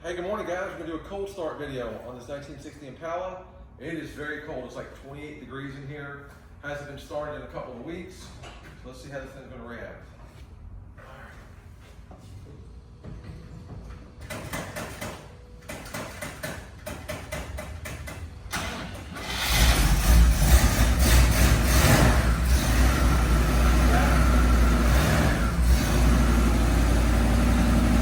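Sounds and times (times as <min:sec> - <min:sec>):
engine starter cranking: 0:18.5 - 0:26.2
car engine revving and idling: 0:19.2 - 0:28.0.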